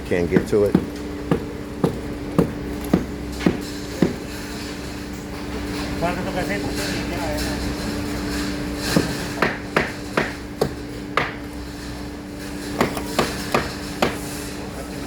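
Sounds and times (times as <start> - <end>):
steady machine hum: 0.0 - 15.0
hammer striking concrete form: 0.3 - 4.4, 9.0 - 11.4, 12.8 - 14.2.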